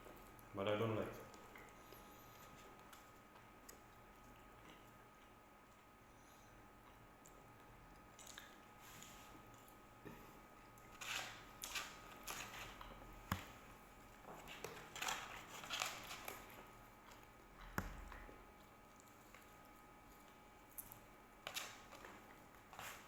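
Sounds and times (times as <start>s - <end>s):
biting and chewing: 6.8s - 9.8s.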